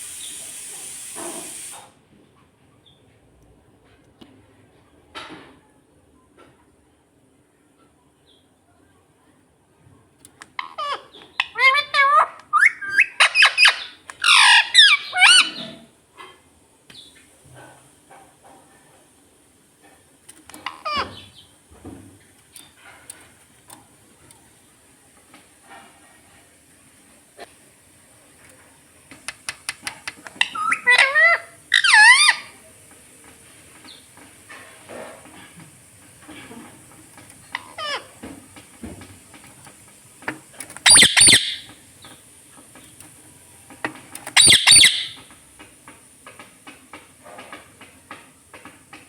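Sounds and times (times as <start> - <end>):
parakeet squawking: 10.5 - 15.8, 20.6 - 21.4, 30.0 - 32.6, 37.5 - 38.2, 40.8 - 41.7, 44.2 - 45.2
parrot calls: 10.5 - 15.9, 20.6 - 21.4, 29.7 - 32.6, 37.5 - 38.3, 40.7 - 41.8, 44.2 - 45.3
parrot clicking: 29.1 - 32.5, 37.2 - 42.2, 43.8 - 46.8.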